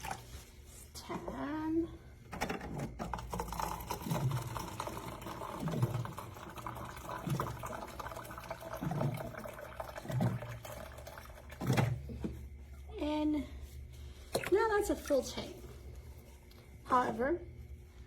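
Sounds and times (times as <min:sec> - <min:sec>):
water pouring into a tank: 0:03.2 - 0:12.2
low gurgle: 0:03.5 - 0:12.2.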